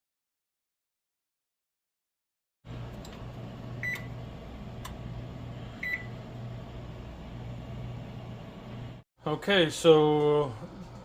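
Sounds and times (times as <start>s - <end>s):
low appliance hum: 2.7s - 11.0s.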